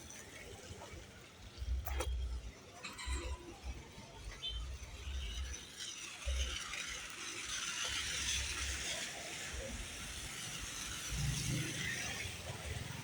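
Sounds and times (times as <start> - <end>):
rain hiss on street: 5.1 - 13.0.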